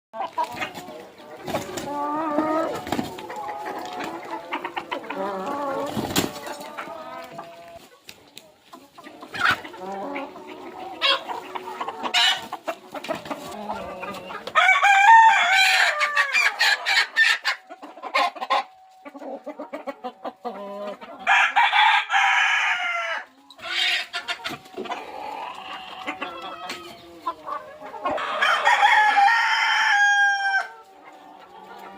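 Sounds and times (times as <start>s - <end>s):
chickens clucking: 0.2s - 31.9s
rooster crowing: 14.5s - 16.5s, 21.2s - 23.3s, 28.3s - 30.8s.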